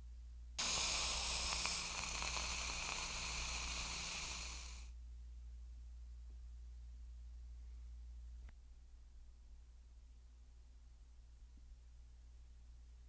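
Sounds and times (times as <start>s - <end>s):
steam iron hissing: 0.6s - 4.9s.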